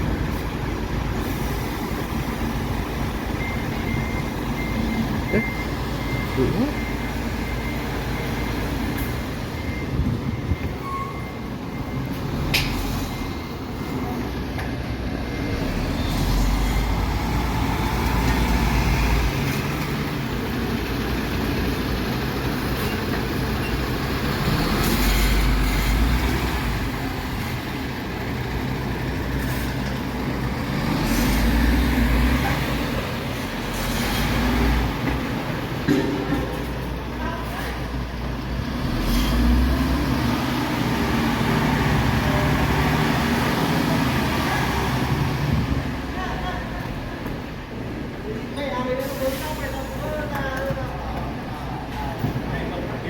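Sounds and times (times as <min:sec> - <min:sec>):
diesel truck engine revving: 0:11.5 - 0:35.8, 0:37.9 - 0:46.2.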